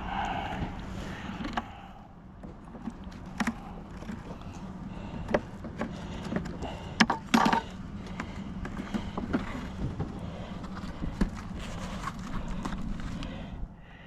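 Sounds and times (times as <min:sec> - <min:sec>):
low steady hum: 0:00.0 - 0:14.0
wooden boxes knocking and scraping: 0:02.4 - 0:12.8.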